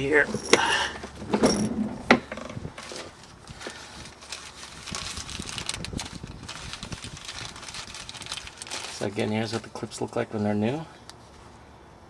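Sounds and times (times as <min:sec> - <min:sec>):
wind buffeting microphone: 0:00.0 - 0:08.7
hands handling small parts: 0:00.2 - 0:04.5.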